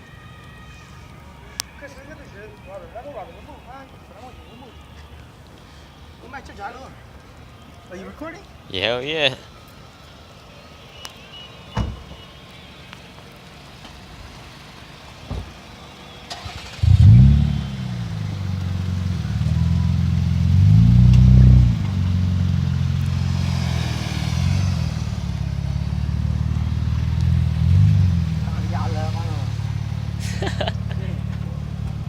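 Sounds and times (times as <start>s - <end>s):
car engine starting and revving: 16.3s - 32.0s.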